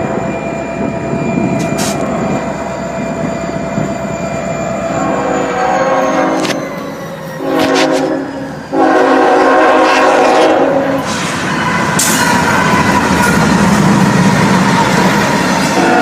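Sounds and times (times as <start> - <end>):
train rumbling and clattering past: 0.0 - 16.0
locomotive horn blasts: 5.0 - 6.6, 7.4 - 11.1, 15.7 - 16.0.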